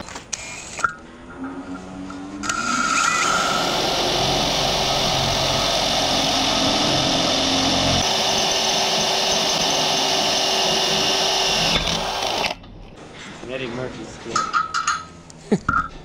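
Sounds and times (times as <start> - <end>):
power tool motor running: 2.4 - 12.6.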